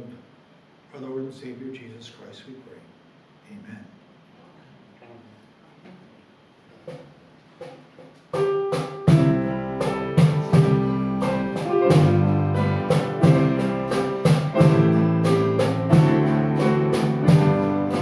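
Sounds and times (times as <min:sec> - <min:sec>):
instrumental music with beat: 0:07.7 - 0:18.0.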